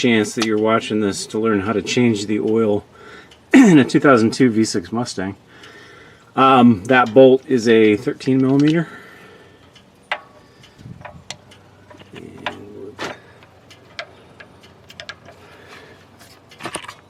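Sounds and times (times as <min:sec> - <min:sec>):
socket wrench clicks and taps: 0:13.4 - 0:15.4.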